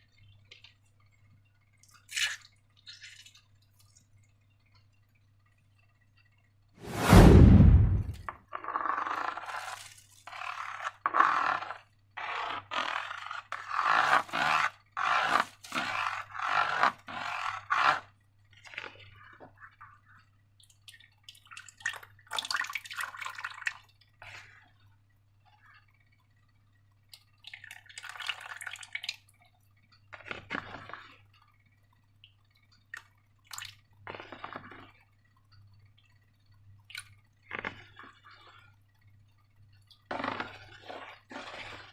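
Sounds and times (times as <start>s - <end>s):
wet slime squelching: 9.4s - 22.0s, 30.1s - 31.4s, 36.8s - 38.7s, 39.8s - 41.9s.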